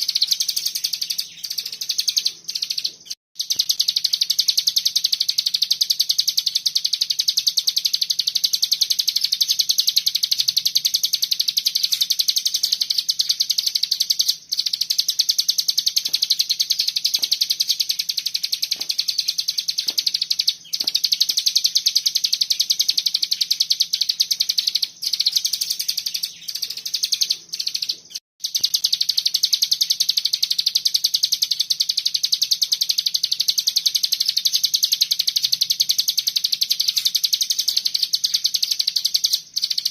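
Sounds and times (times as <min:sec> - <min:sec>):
bird rapid high chatter song: 0:00.0 - 0:39.9.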